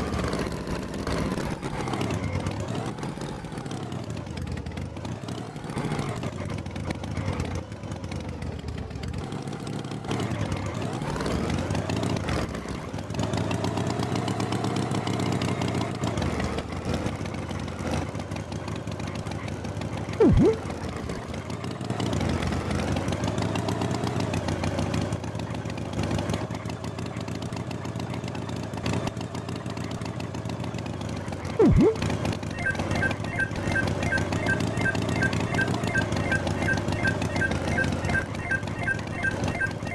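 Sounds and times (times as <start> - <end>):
engine revving: 0.0 - 39.9.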